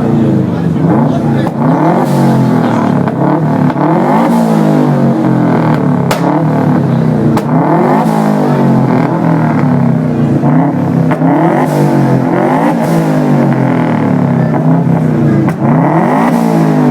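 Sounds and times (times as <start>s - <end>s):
car engine revving: 0.0s - 16.9s
exhaust pops: 0.7s - 16.9s.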